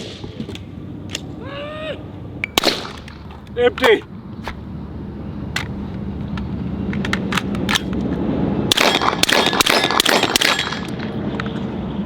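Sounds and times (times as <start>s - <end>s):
rifle reloading clicks and rattles: 2.4s - 4.6s, 5.6s - 8.0s.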